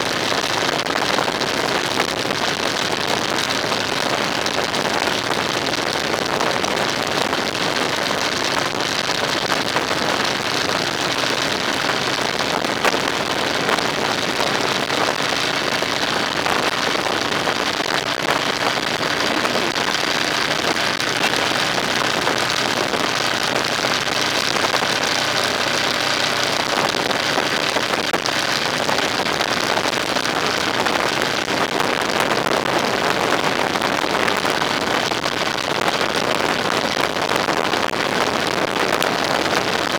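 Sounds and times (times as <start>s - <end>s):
road and wind noise: 0.0s - 39.9s
faint engine drone: 5.7s - 31.3s.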